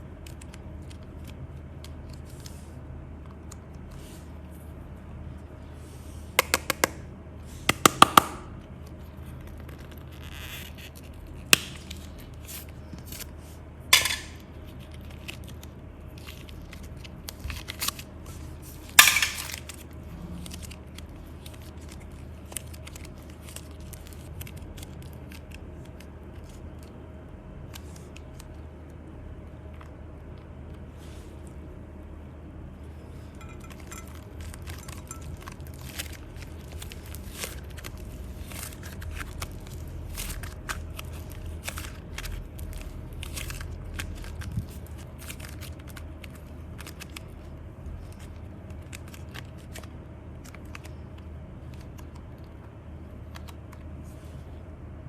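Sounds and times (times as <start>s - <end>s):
small hard objects clicking: 6.4s - 7.0s.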